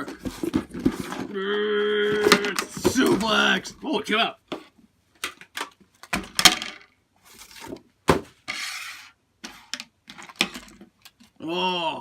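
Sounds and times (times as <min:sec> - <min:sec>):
items knocking and clinking: 0:00.0 - 0:01.3, 0:02.1 - 0:03.7, 0:04.5 - 0:07.0, 0:09.6 - 0:11.3.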